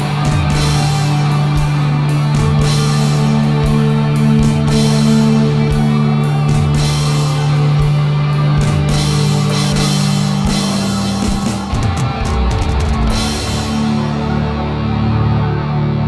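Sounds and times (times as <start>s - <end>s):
rock drum beat: 0.0s - 14.4s
heavy low guitar notes: 0.0s - 16.0s.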